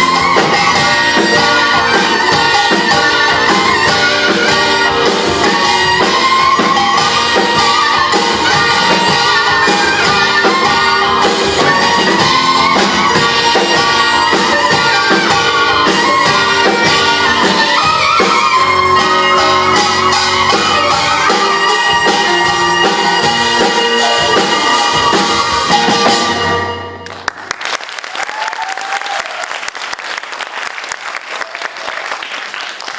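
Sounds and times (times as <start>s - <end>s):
drum strikes: 0.0s - 27.2s
sliding melody line: 0.0s - 27.3s.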